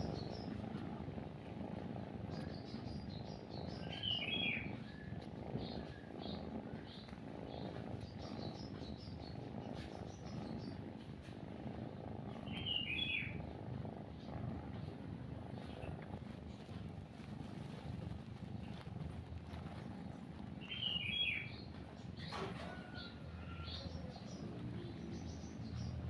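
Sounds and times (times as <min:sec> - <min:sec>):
cat purring: 0:00.0 - 0:26.0
small birds chirping: 0:00.0 - 0:26.0
loud bird calls: 0:02.4 - 0:10.8, 0:12.4 - 0:13.4, 0:20.6 - 0:26.0.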